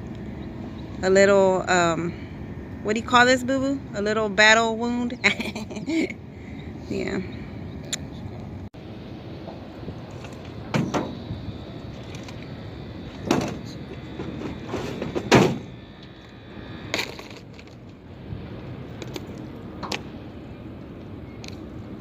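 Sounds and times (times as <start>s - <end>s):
knocks and clunks: 10.7s - 11.2s, 13.2s - 15.7s.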